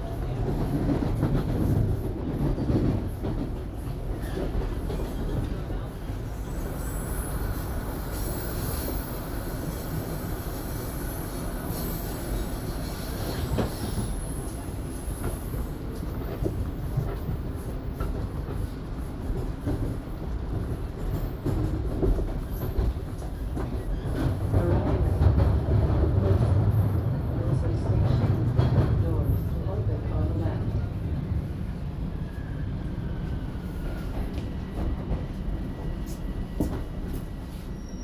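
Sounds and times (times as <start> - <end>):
train wheels rumbling on rails: 0.0 - 38.0
high wheel squeal: 37.7 - 38.0.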